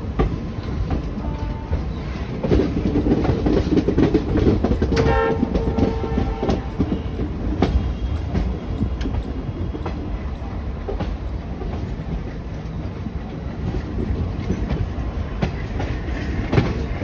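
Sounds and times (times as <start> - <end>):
train wheels clacking over rails: 0.0 - 17.0
diesel locomotive horn: 1.1 - 2.2, 4.9 - 8.7.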